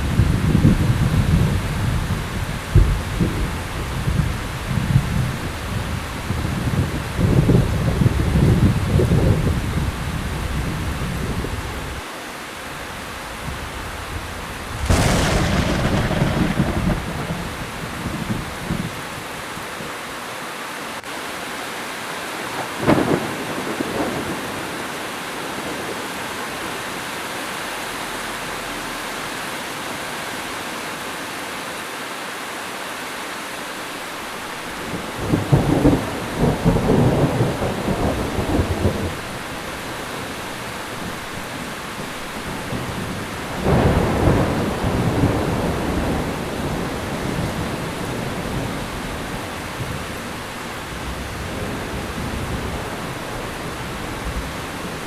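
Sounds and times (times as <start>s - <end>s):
thunder crack: 0.0s - 5.5s, 13.4s - 19.0s, 34.9s - 40.0s, 42.7s - 50.1s
rumbles of thunder: 0.0s - 12.0s, 13.2s - 19.2s, 22.6s - 24.9s, 34.8s - 55.0s
heavy rain falling: 0.0s - 55.0s.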